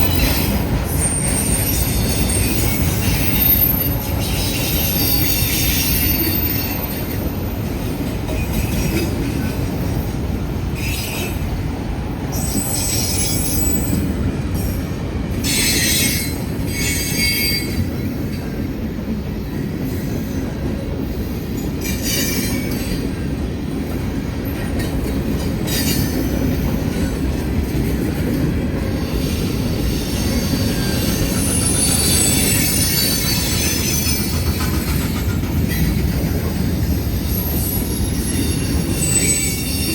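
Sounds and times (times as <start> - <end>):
train wheels squealing: 0.0 - 11.7, 12.3 - 18.6, 19.4 - 23.4, 24.4 - 39.9
freight train rumbling past: 0.0 - 39.9.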